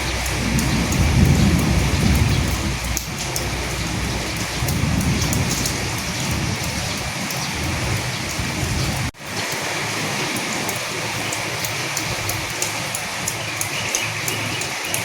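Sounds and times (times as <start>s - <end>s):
low rumble of thunder: 0.0s - 9.1s
raindrops ticking: 0.0s - 15.0s
steady rain falling: 0.0s - 15.0s.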